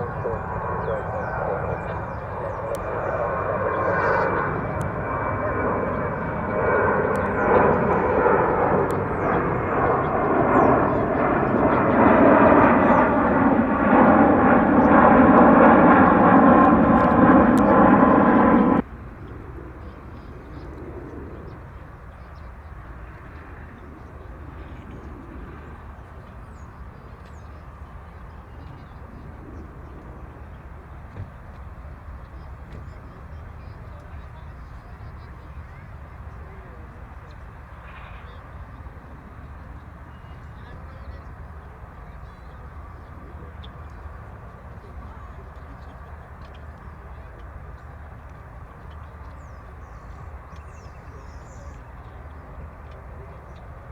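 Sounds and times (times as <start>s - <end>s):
jet engines roaring: 0.0s - 21.8s.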